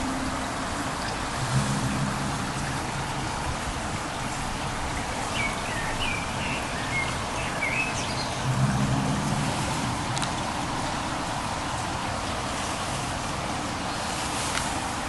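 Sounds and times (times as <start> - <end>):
low hum: 0.0 - 5.6, 8.3 - 12.3
bird chirps: 5.0 - 8.5.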